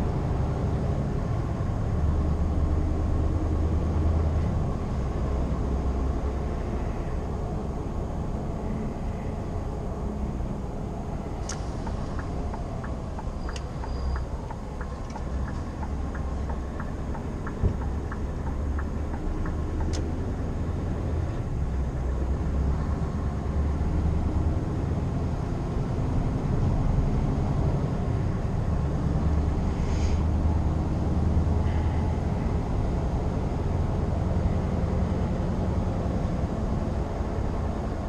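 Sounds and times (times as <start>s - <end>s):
road noise: 0.0s - 38.0s
truck engine droning: 0.0s - 38.0s
light ticking: 11.4s - 20.1s.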